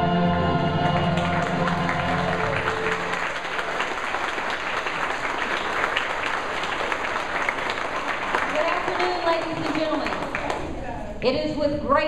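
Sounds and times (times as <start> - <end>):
held song notes: 0.0 - 4.2
audience applauding: 0.7 - 10.9.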